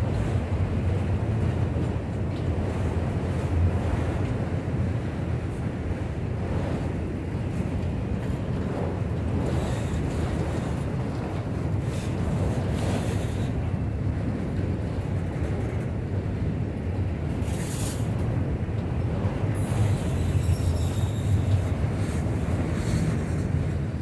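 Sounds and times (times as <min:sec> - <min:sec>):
freight cars rumbling on rails: 0:00.0 - 0:24.0
faint high squeal: 0:20.1 - 0:21.5.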